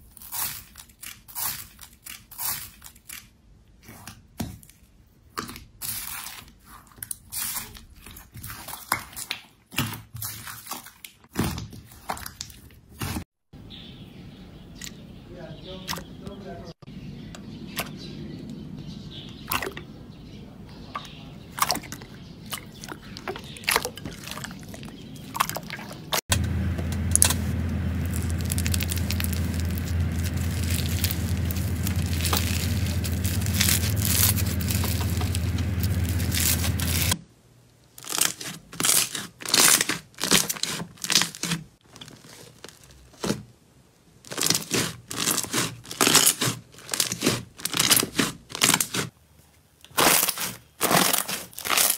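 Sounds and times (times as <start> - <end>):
low hum: 26.3 - 37.2
crunchy slime squeezed by hand: 27.1 - 37.2, 49.9 - 51.9.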